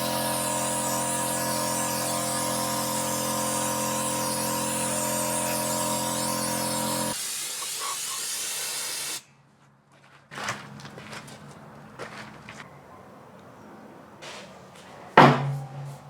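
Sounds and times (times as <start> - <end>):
motor hum: 0.0 - 7.2
sandblasting air hiss: 0.0 - 9.2
knock: 15.2 - 16.0.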